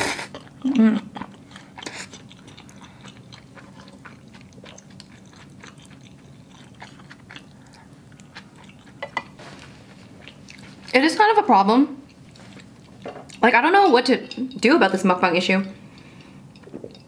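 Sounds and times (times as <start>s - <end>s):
chewing and mouth sounds: 0.0s - 11.0s, 12.0s - 13.5s.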